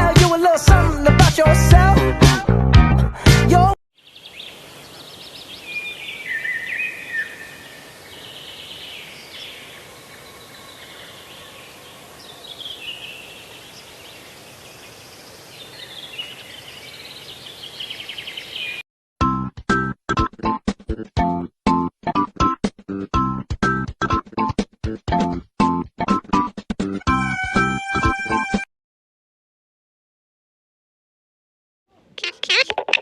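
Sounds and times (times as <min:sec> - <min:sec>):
small birds chirping: 0:04.0 - 0:18.8.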